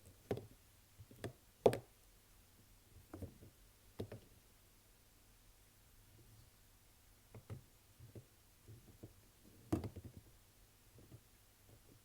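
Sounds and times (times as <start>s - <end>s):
soap packaging taps and clicks: 1.1s - 1.9s.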